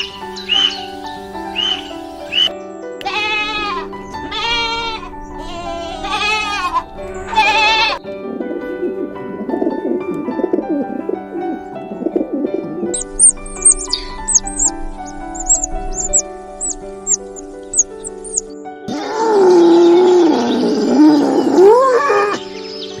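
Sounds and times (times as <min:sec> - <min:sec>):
bird chirping quickly: 0:00.0 - 0:02.5, 0:13.0 - 0:18.5
background music: 0:00.0 - 0:23.0
animal bleating: 0:03.0 - 0:08.0
low warbling sound: 0:13.0 - 0:18.6.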